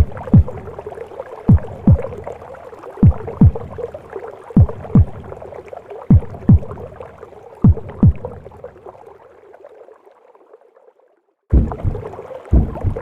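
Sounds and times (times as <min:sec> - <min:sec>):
heartbeat thumps: 0:00.0 - 0:00.8, 0:01.5 - 0:02.2, 0:03.0 - 0:03.8, 0:04.6 - 0:05.3, 0:06.1 - 0:06.9, 0:07.6 - 0:08.4, 0:11.5 - 0:13.0
whooshing gurgling womb noise: 0:00.0 - 0:10.2, 0:11.5 - 0:13.0.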